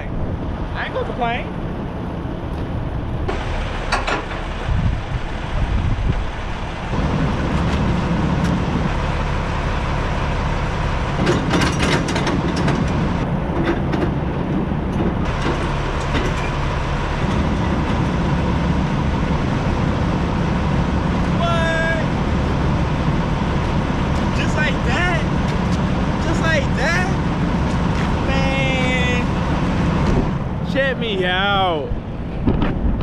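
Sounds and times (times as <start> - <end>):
diesel truck engine humming: 0.0 - 33.0
short clicks and clanks: 11.2 - 13.0.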